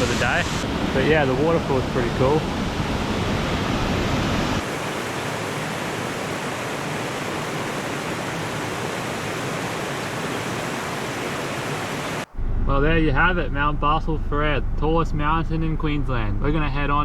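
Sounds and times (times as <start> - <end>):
waterfall rushing: 0.0 - 12.3
low rumble: 12.3 - 17.0.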